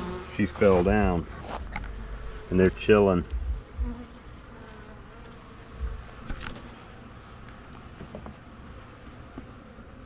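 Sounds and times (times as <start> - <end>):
bees buzzing: 0.0 - 10.0
low bump: 0.8 - 4.2, 5.8 - 6.1.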